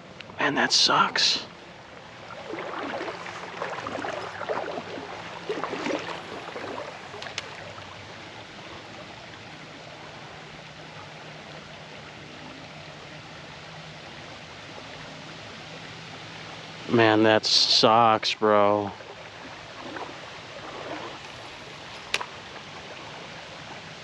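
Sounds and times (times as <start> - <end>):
stream water flowing: 0.0 - 24.0
splashing and rustling: 2.0 - 8.0, 18.9 - 23.3.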